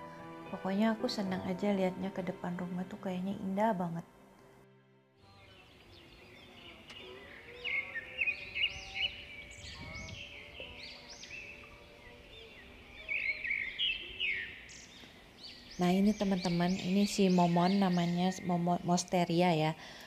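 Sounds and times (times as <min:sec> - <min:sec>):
faint music: 0:00.0 - 0:20.0
small birds chirping: 0:05.2 - 0:20.0.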